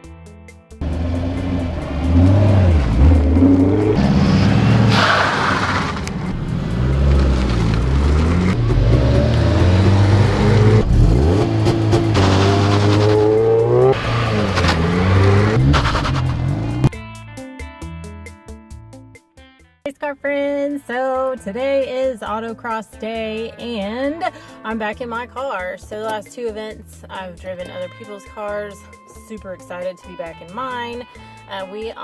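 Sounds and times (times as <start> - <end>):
car engine revving hard: 0.8 - 16.9
tyre squeal: 4.0 - 6.3.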